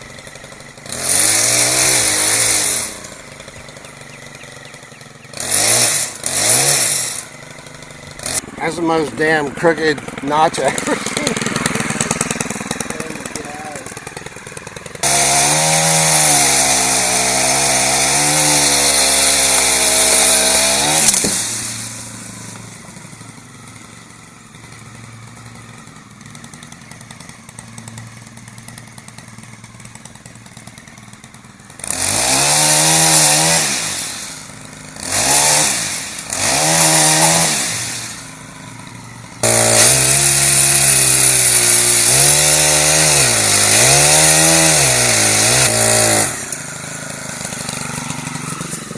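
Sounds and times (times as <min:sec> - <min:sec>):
chainsaw cutting and idling: 0:00.0 - 0:48.9.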